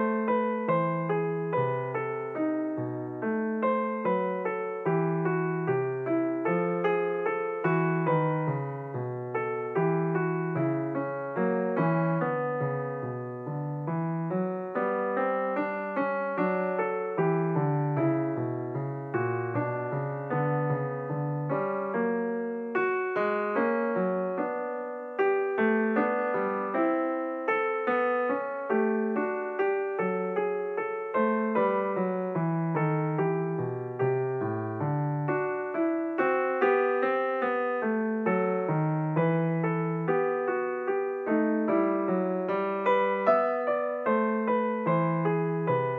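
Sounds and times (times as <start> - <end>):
piano music: 0.0 - 45.9.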